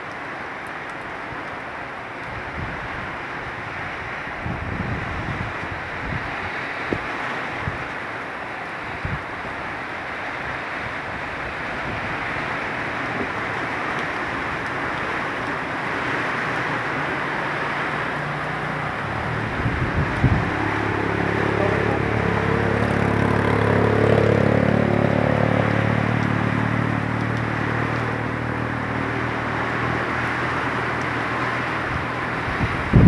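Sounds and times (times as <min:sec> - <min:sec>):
heavy rain and wind: 0:00.0 - 0:33.0
motor engine hum: 0:11.4 - 0:33.0.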